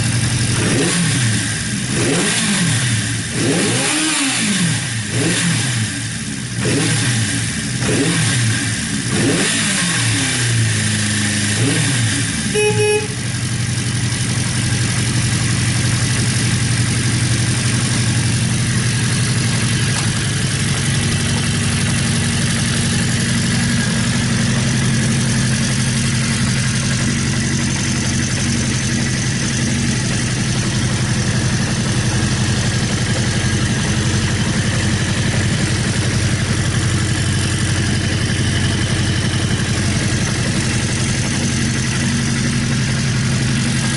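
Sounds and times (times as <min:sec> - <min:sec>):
motorcycle engine revving and idling: 0:00.0 - 0:43.9
short horn beep: 0:12.4 - 0:13.4.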